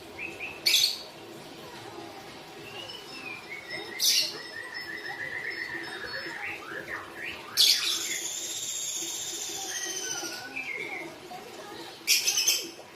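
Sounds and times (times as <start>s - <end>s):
songbird warbling and trilling: 2.6s - 11.0s.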